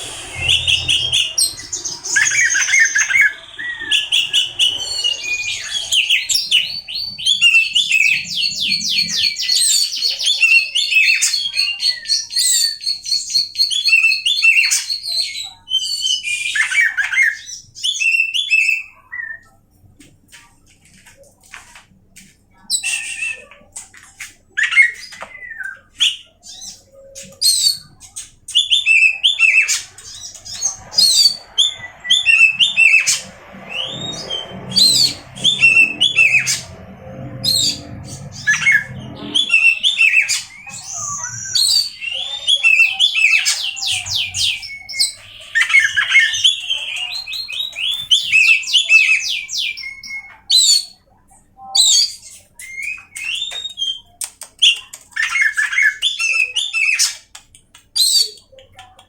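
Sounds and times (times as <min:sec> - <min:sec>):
low rumble: 0:00.0 - 0:07.4, 0:29.8 - 0:41.8
bird singing whistles and trills: 0:00.0 - 0:19.5, 0:24.6 - 0:57.2.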